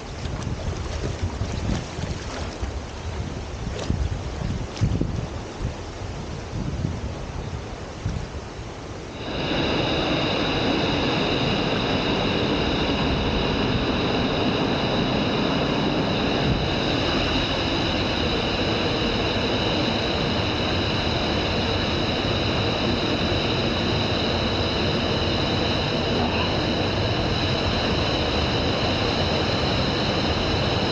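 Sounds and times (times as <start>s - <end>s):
waterfall roaring: 9.1s - 11.8s, 25.2s - 27.3s.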